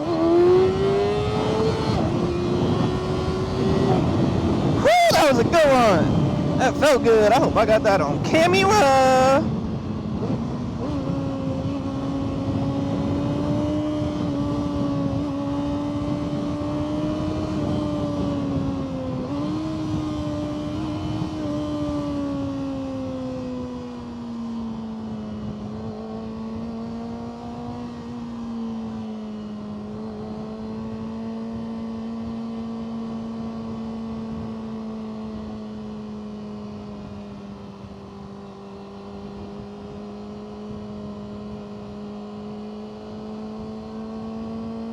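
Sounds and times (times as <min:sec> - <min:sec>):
motorcycle engine cruising: 0:00.0 - 0:44.9
wind rush: 0:00.6 - 0:13.4.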